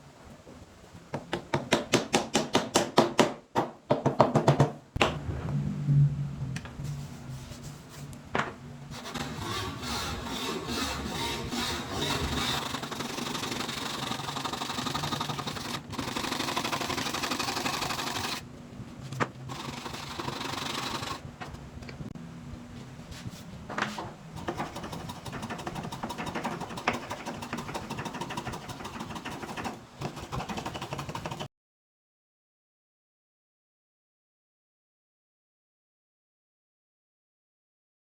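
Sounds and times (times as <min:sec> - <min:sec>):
hand tool scraping wood: 0:09.0 - 0:16.2, 0:24.4 - 0:31.5.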